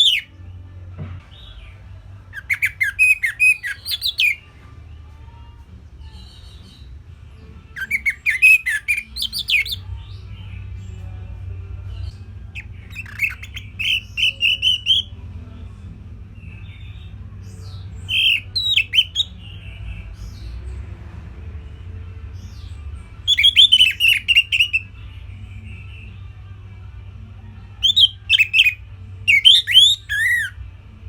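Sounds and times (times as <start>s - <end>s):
bird chirping: 0.0s - 0.3s, 2.3s - 4.4s, 7.7s - 10.5s, 12.6s - 15.1s, 16.4s - 20.7s, 22.4s - 24.9s, 27.8s - 30.6s.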